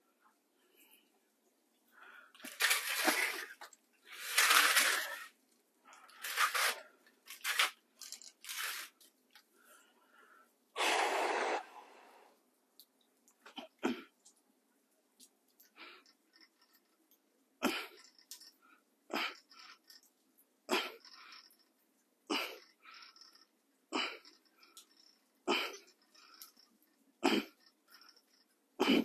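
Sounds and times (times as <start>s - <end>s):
person breathing forcefully: 10.8s - 12.4s.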